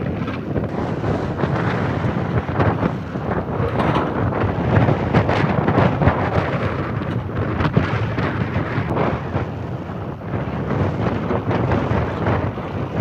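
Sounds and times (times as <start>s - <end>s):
excavator engine under load: 0.0s - 9.0s.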